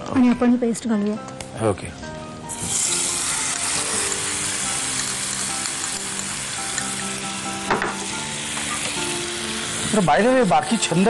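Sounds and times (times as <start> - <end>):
paste sizzling in hot oil: 2.5 - 11.0.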